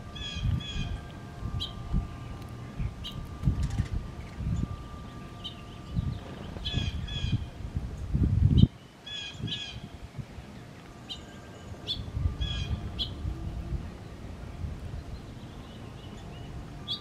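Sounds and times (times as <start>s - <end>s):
low rumbling noise: 0.0s - 17.0s
birds harsh calls: 4.2s - 7.6s, 8.8s - 9.9s, 10.6s - 13.2s.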